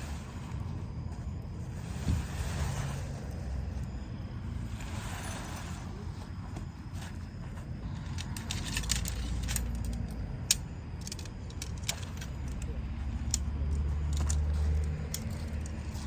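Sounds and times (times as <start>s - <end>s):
small clinks and clicks: 7.8s - 16.0s.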